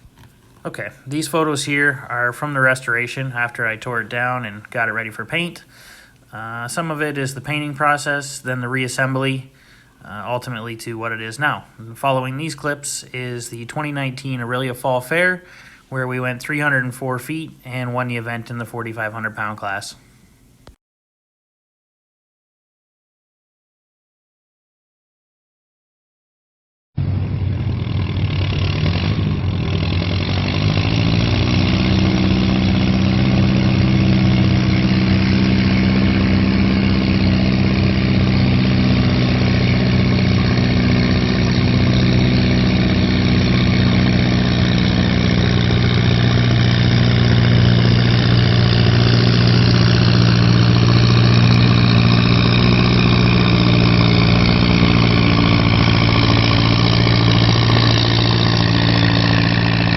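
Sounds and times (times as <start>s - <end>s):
tractor engine pulling hard: 27.0s - 59.9s.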